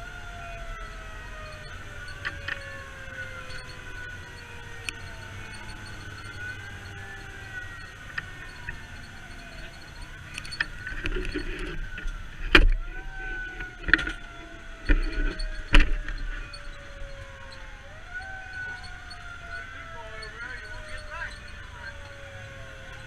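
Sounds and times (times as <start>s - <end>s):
fire engine siren wailing: 0.0s - 23.0s
low engine rumble: 0.0s - 23.0s.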